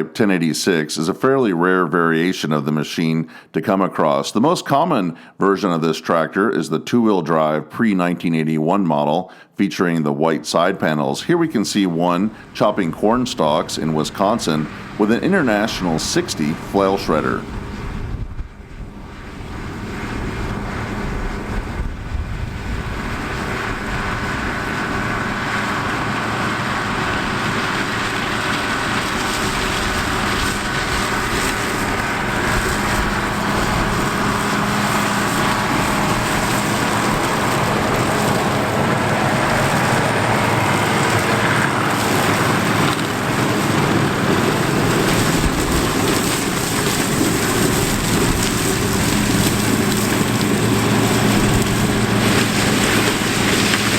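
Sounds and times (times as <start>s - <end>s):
tractor diesel engine under load: 10.2s - 53.9s
flail shredder chopping corn stalks: 11.6s - 53.9s.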